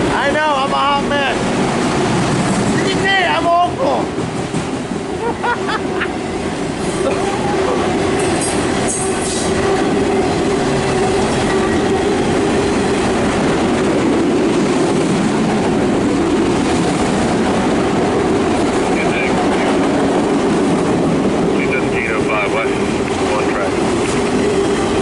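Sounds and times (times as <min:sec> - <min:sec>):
freight train wheels rumbling: 0:00.0 - 0:25.0.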